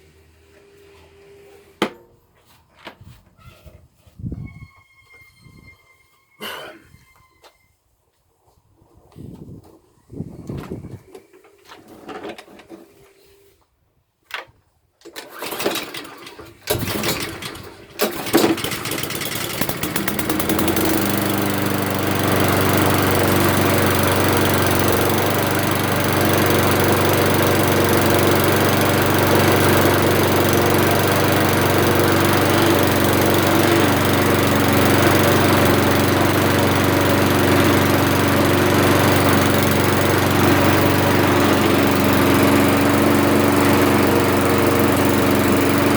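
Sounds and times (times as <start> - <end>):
lawnmower engine starting: 10.4 - 13.3, 15.0 - 45.9.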